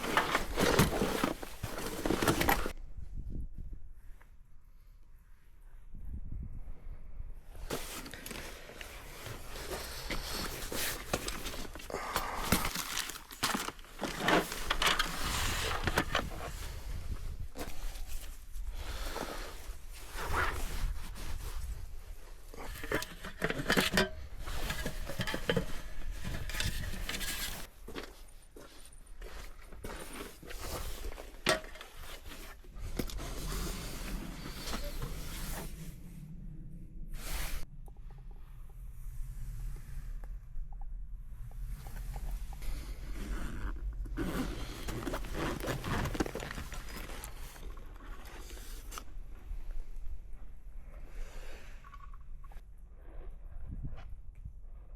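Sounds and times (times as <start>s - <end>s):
bags rustling and crinkling: 0.0s - 2.8s, 7.7s - 35.8s, 43.1s - 49.5s
steady low rumble: 32.7s - 45.3s.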